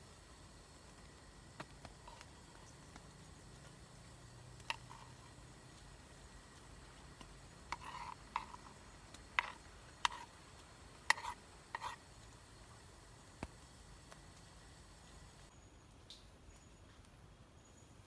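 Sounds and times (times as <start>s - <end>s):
metal utensil clinking on pot: 4.6s - 5.4s, 6.0s - 10.3s.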